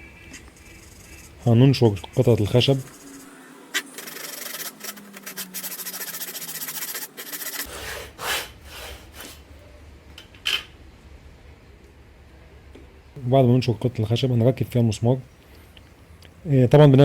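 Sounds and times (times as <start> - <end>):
hand saw cutting wood: 3.8 - 9.4.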